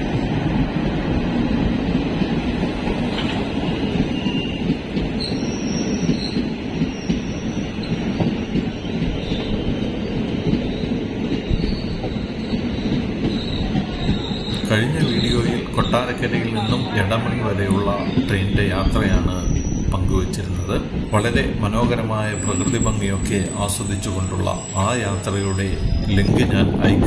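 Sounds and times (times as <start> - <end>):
train wheels rumbling on rails: 0.0 - 27.0
high-pitched wheel squeals: 4.1 - 10.0, 10.7 - 21.5, 22.2 - 26.7.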